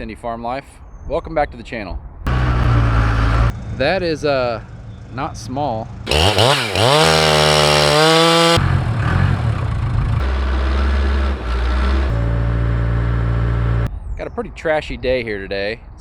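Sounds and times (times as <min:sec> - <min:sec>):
diesel machinery engine running: 0:02.3 - 0:05.2, 0:05.8 - 0:13.9
chainsaw revving: 0:06.0 - 0:12.3.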